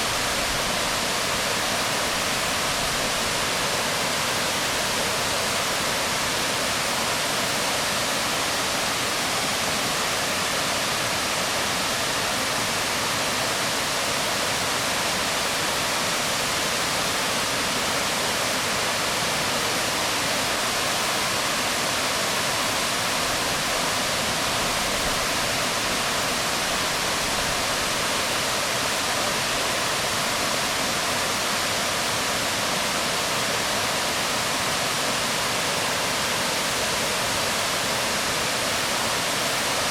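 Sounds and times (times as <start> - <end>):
waterfall falling on rocks: 0.0 - 39.9.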